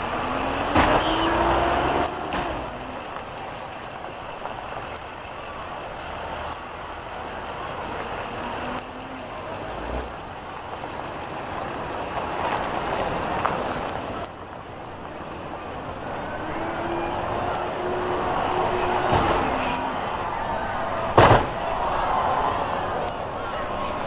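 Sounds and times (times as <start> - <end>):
vehicle engines running: 0.0 - 24.0
low thud: 21.1 - 21.8.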